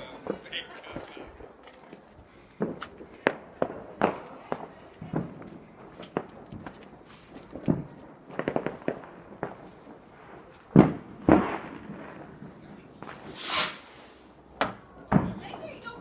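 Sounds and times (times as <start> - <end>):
fireworks bangs: 0.0 - 16.0
fireworks crackling: 0.0 - 16.0
hissing whoosh: 13.3 - 14.4.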